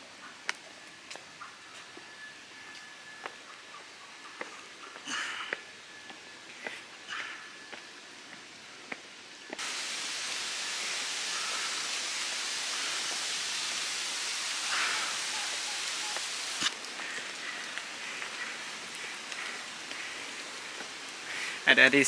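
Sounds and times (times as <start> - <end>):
heavy rain: 9.2 - 22.0.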